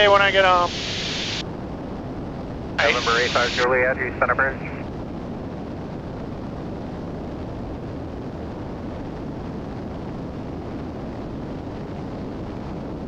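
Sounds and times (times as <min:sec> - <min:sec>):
twin propeller aircraft cabin drone: 0:00.0 - 0:13.0.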